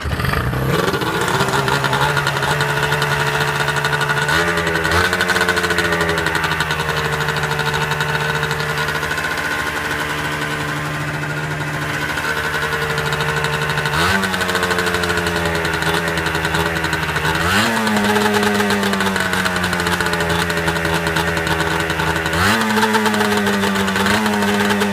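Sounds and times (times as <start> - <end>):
motorcycle engine idling and revving: 0.0 - 24.9.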